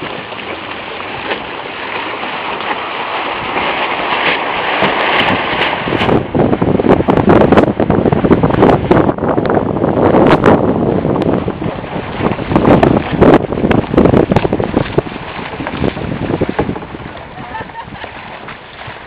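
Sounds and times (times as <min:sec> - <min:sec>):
rushing water and wind: 0:00.0 - 0:19.0
crackles: 0:12.0 - 0:19.0.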